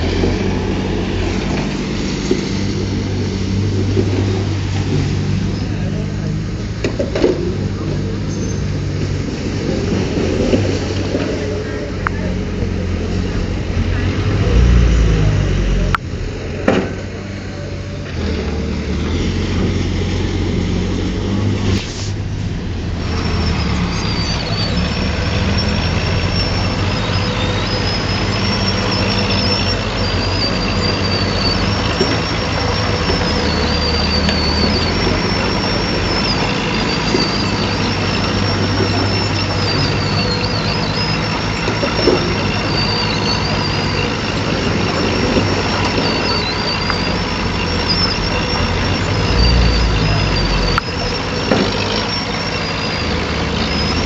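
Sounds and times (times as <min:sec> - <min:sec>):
heavy diesel engine running: 0:00.0 - 0:54.0
high wavering whine: 0:11.3 - 0:54.0.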